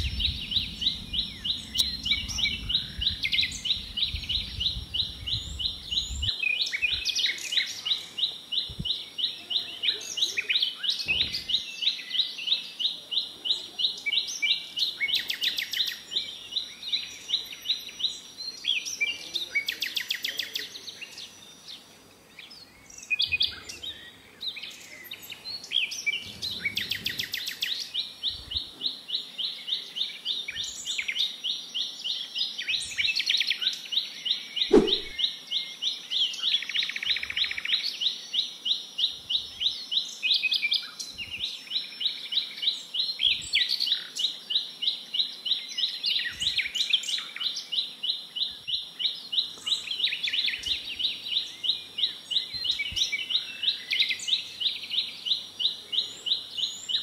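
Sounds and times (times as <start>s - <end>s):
fast high bird chirps: 34.7s - 35.2s
short bird calls: 34.7s - 35.2s.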